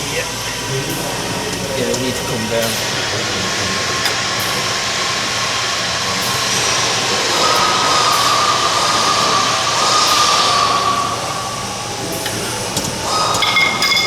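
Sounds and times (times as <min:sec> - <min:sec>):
mechanical whine: 0:00.0 - 0:14.0
rushing noise: 0:02.5 - 0:14.0.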